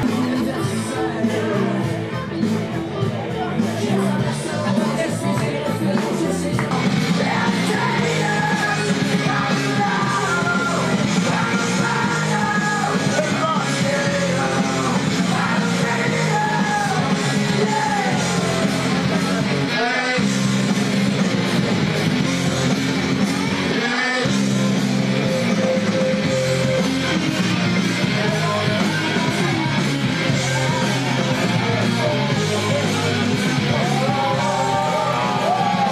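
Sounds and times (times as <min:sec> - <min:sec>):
person singing: 0:00.0 - 0:21.4, 0:23.0 - 0:35.9
rock music: 0:00.0 - 0:35.9.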